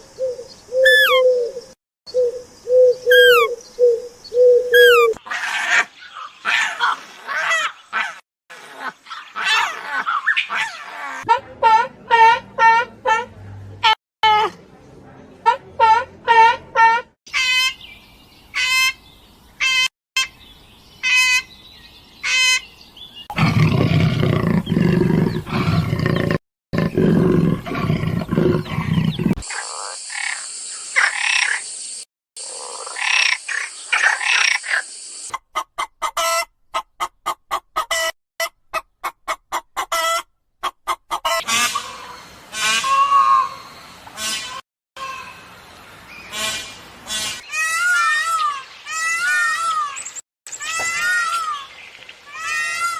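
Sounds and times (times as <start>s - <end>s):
animal calls: 0.7s - 1.6s, 2.2s - 11.4s
quick repeated chirps: 0.8s - 1.2s, 3.1s - 3.5s, 4.7s - 5.2s.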